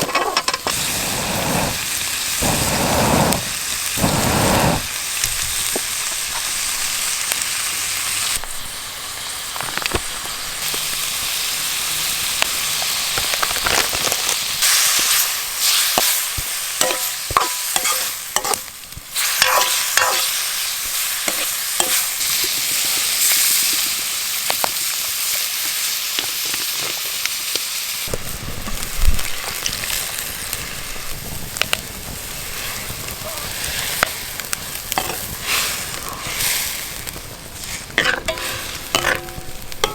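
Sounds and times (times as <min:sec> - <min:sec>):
metal utensil scraping a pan: 0:00.0 - 0:00.8, 0:16.8 - 0:22.4, 0:34.9 - 0:39.9
food sizzling in a pan: 0:00.0 - 0:39.9.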